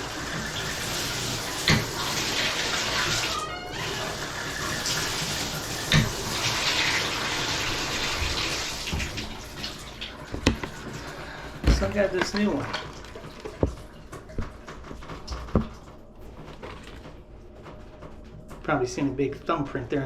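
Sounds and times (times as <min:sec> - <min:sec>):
shower water spraying: 0:00.0 - 0:16.0
short knocks: 0:14.4 - 0:15.9.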